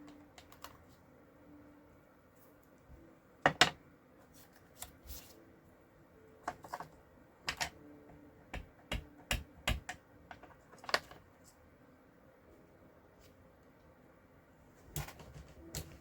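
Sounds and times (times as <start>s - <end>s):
stamping supplies clicking and tapping: 8.5s - 11.1s.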